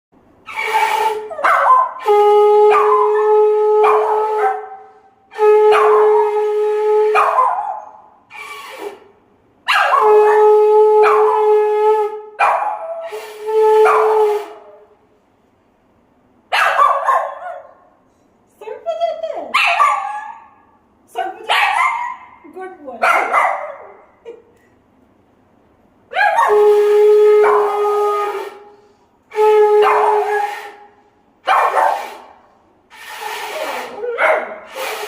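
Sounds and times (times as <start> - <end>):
conch shell blasts: 2.0 - 7.2, 13.0 - 14.9, 26.5 - 31.1
dog howling and yipping: 27.4 - 28.0.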